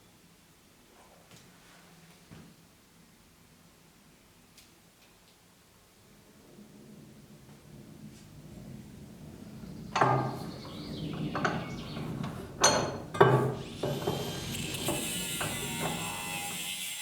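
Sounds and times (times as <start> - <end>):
hand tools knocking and clanking: 9.8 - 16.7
steady high hiss: 13.5 - 17.0.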